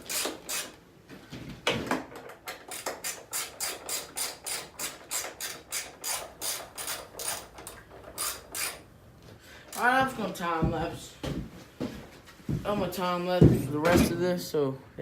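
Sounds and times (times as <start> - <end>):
ratchet wrench clicking: 0.0 - 0.8, 2.5 - 8.8.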